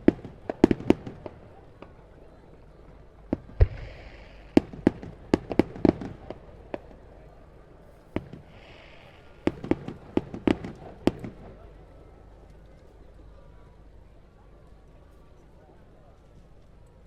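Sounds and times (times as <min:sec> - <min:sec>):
deep firework boom: 0:03.4 - 0:05.1
firework shells bursting: 0:03.6 - 0:05.0.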